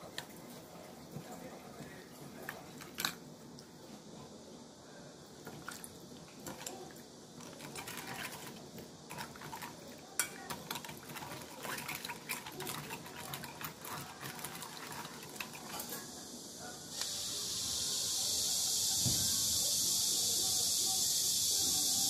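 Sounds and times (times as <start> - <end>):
water pouring into bowl: 5.4 - 16.0.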